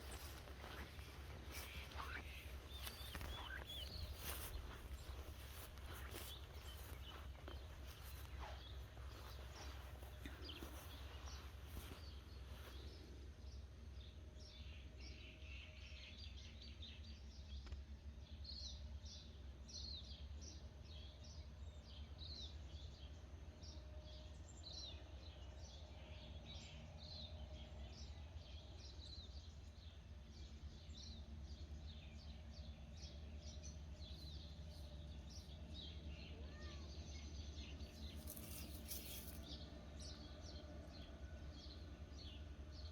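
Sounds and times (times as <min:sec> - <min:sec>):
birds chirping: 0:00.0 - 0:13.6, 0:27.9 - 0:42.9
low steady rumble: 0:00.0 - 0:25.2.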